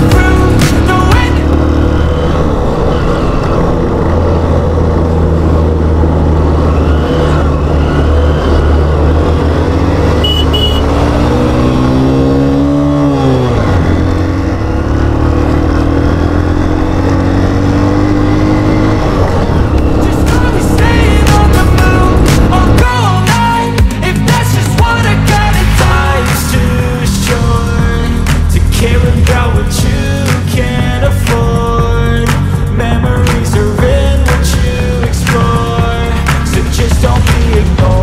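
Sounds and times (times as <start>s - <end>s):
motorcycle engine accelerating: 0.0s - 38.0s
short high beep: 10.2s - 10.9s.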